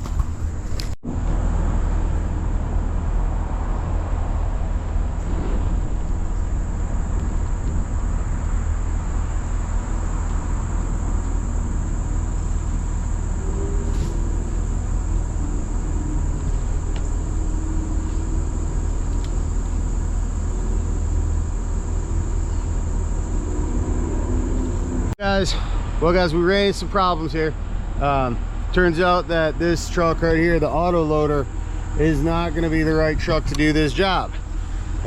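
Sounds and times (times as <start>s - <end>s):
truck engine rumbling: 0.0s - 35.0s
high insect-like buzz: 5.6s - 25.2s.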